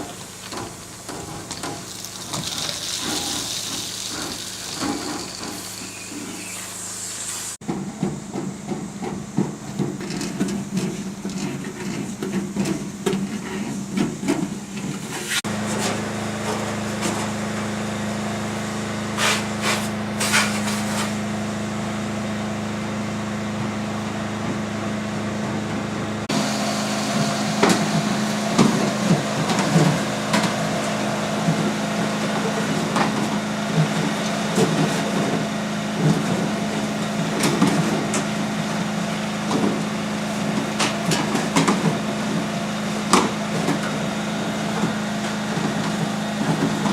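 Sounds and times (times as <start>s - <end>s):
hoses and tools knocking: 0.1s - 6.6s, 7.6s - 17.4s
vacuum machine humming: 15.4s - 46.9s.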